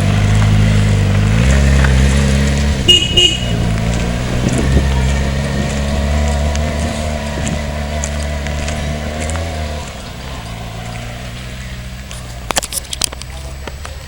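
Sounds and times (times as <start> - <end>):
car engine running: 0.0 - 14.0
car horn toots: 2.8 - 4.7.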